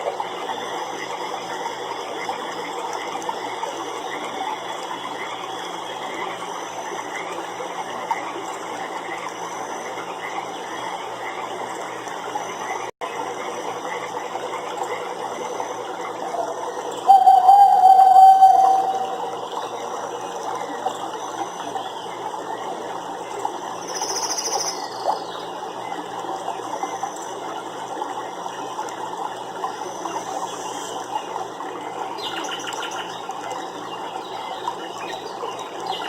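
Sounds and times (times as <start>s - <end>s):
frogs calling: 14.9s - 22.6s, 23.8s - 25.5s.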